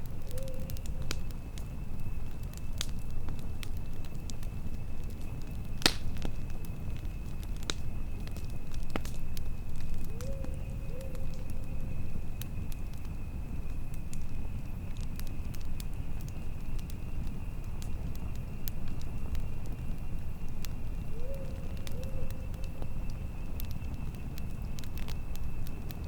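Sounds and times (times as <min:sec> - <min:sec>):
campfire crackling and popping: 0:00.0 - 0:26.0
low wind rumble: 0:00.0 - 0:26.0.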